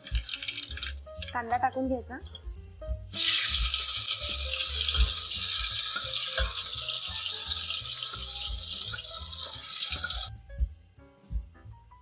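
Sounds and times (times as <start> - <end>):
onion paste sizzling in oil: 0.0 - 1.3, 3.1 - 10.3.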